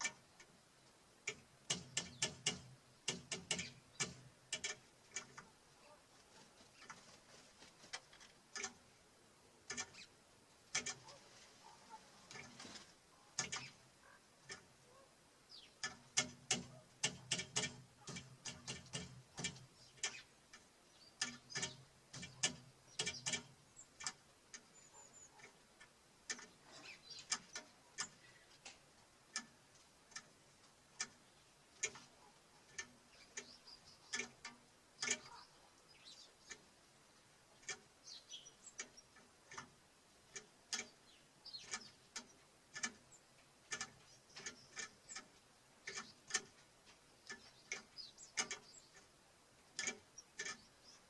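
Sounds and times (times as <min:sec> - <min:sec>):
birds pecking on wooden feeder: 0:00.0 - 0:09.0, 0:09.6 - 0:51.0
high bird chirp: 0:24.6 - 0:25.4, 0:33.1 - 0:34.3, 0:38.0 - 0:39.2.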